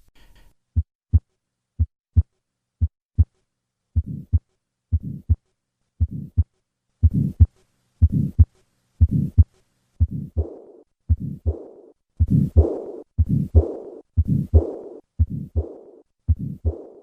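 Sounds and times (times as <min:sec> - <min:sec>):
heartbeat sounds: 0:00.8 - 0:03.4, 0:04.0 - 0:05.4, 0:06.0 - 0:17.0
heart murmur: 0:04.0 - 0:04.4, 0:05.0 - 0:05.4, 0:06.0 - 0:17.0.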